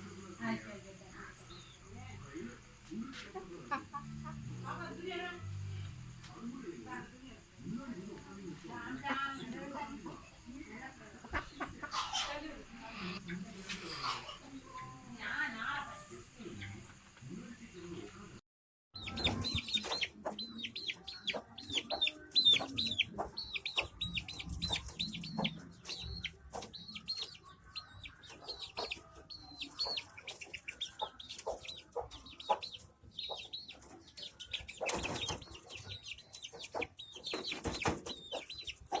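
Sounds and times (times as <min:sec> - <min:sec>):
chicks peeping: 0:11.2 - 0:13.3, 0:19.0 - 0:39.0.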